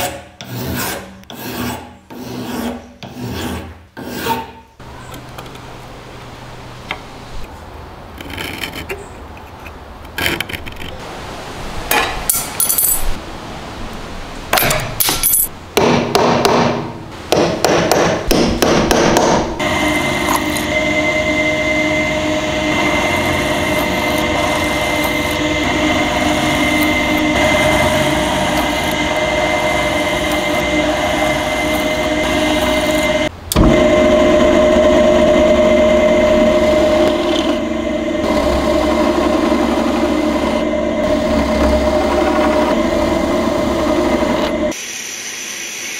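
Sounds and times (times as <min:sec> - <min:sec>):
power tool whining: 0:19.6 - 0:44.8.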